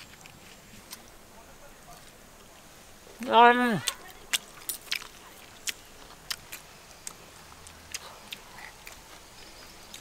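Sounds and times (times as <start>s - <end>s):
person chewing: 3.8s - 10.0s.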